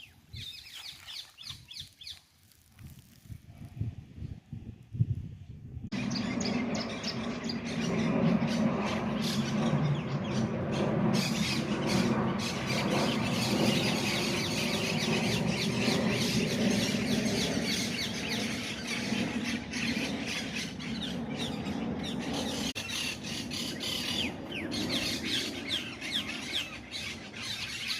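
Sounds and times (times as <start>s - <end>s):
birds squawking and chirping: 0.0s - 2.2s, 6.0s - 27.9s.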